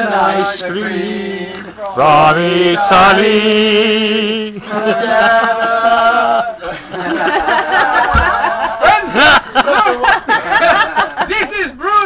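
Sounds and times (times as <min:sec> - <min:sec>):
men singing unaccompanied: 0:00.0 - 0:09.4
people laughing: 0:04.5 - 0:11.8
people talking: 0:04.6 - 0:12.0.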